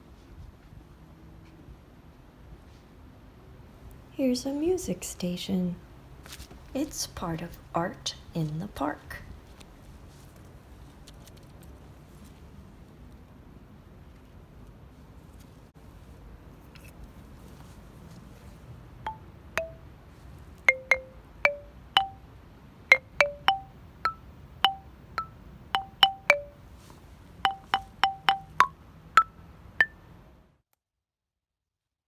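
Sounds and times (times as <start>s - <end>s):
tuned percussion notes: 19.1s - 19.9s, 20.7s - 22.2s, 22.9s - 26.6s, 27.4s - 30.0s.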